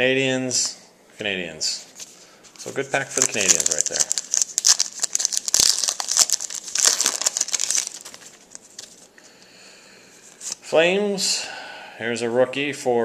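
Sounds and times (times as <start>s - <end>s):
wrapper crinkling: 2.0s - 9.1s.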